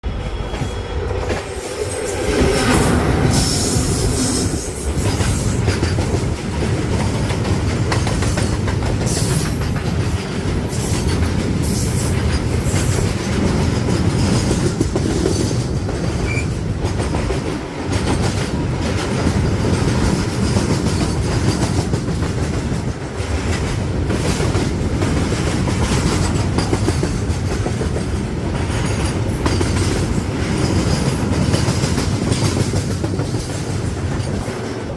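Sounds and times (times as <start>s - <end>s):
freight train rumbling past: 0.0s - 34.9s
high wheel squeal: 0.1s - 4.7s
wheels clacking over rail joints: 0.4s - 34.9s.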